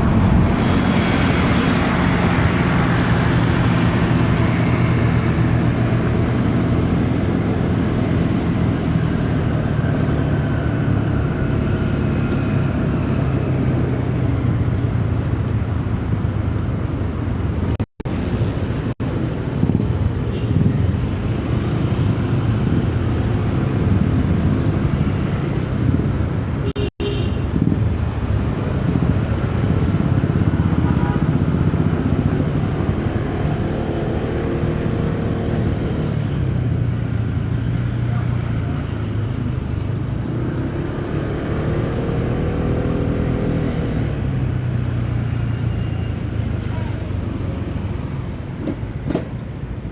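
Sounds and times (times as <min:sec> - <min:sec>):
road and traffic noise: 0:00.0 - 0:49.9.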